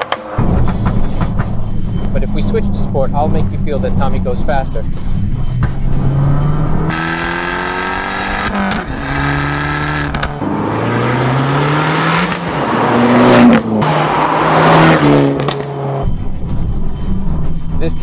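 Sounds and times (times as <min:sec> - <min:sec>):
car engine accelerating hard: 0:02.6 - 0:16.6.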